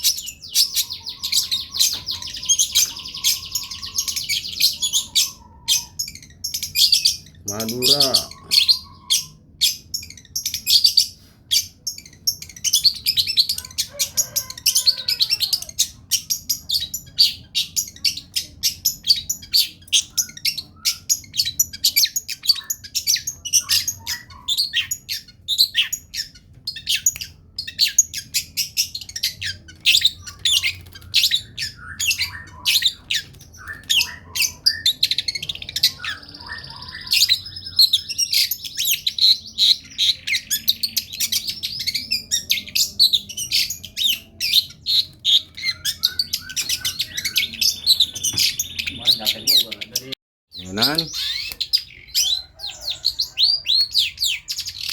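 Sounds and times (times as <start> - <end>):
bird chirping and squawking: 0.0 - 54.9
bird whistle: 29.5 - 49.9.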